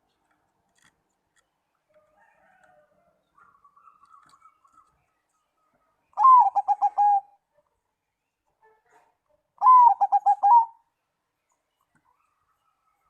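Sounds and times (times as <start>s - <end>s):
dove cooing: 6.2s - 7.3s, 9.6s - 10.8s.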